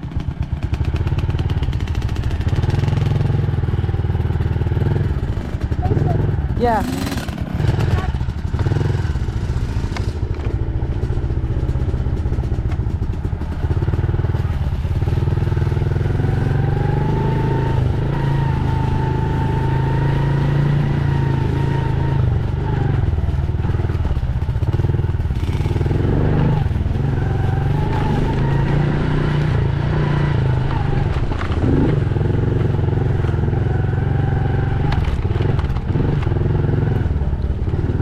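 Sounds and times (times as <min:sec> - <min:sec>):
dirt bike engine revving: 0:02.1 - 0:11.3, 0:15.1 - 0:23.0, 0:24.6 - 0:37.1.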